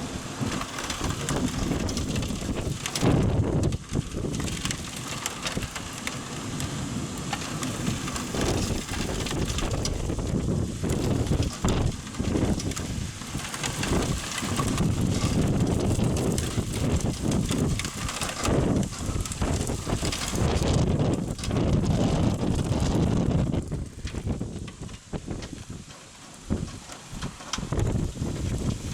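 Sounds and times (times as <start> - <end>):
gusting wind: 0.0 - 28.9
steady rain: 0.0 - 28.9
thunder rumbling: 7.0 - 25.7.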